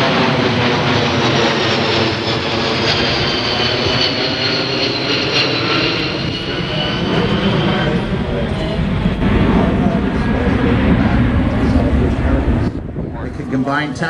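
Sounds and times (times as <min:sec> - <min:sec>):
jet engines in flight: 0:00.0 - 0:14.0.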